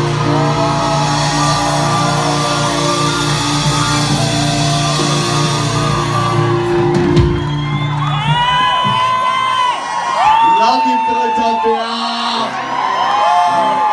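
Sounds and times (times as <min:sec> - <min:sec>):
rock band holding a chord: 0:00.0 - 0:09.6
cymbals ringing: 0:00.0 - 0:09.8
crowd cheering and whooping: 0:00.0 - 0:13.9.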